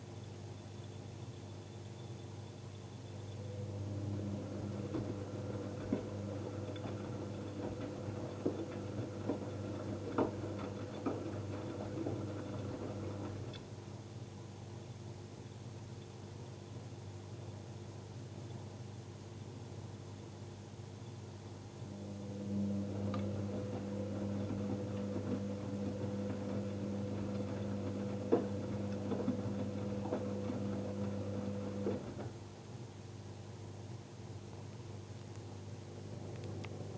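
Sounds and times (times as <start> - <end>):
washing machine motor hum: 3.4 - 13.6, 21.8 - 32.5.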